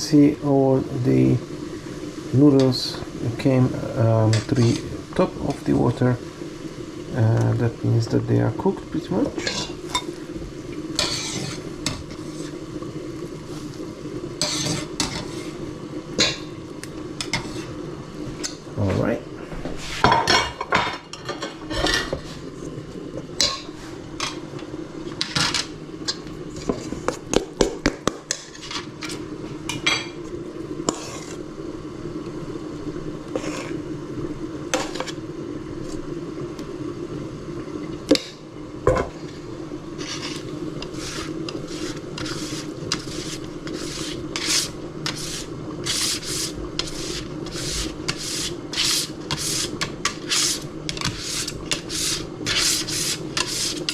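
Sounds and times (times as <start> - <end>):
steady low hum: 0.0 - 53.9
utensil scraping a pan: 4.3 - 5.7, 9.4 - 10.1, 10.9 - 12.6, 14.4 - 15.6, 17.2 - 17.8, 19.7 - 20.6, 23.4 - 24.4, 25.2 - 29.2, 30.8 - 31.4, 33.3 - 33.8, 34.7 - 35.2, 39.9 - 53.9.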